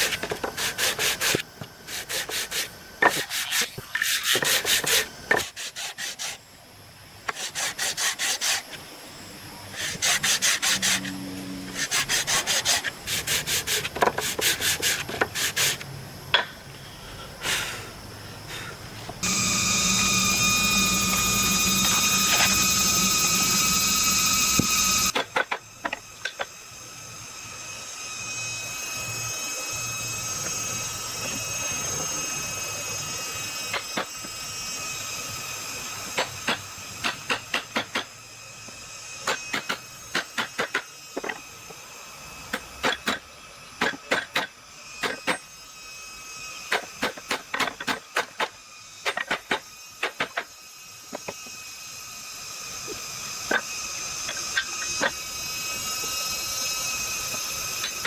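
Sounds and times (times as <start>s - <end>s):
power tool whining: 18.5s - 58.0s.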